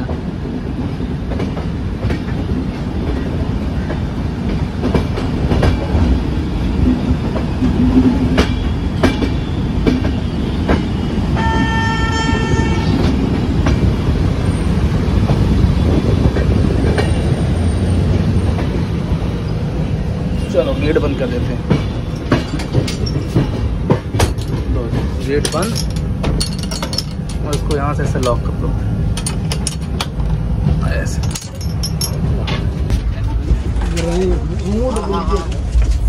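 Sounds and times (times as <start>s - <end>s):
train rumbling: 0.0s - 36.0s
train horn: 11.4s - 13.2s
wheels clacking over rail joints: 21.5s - 36.0s.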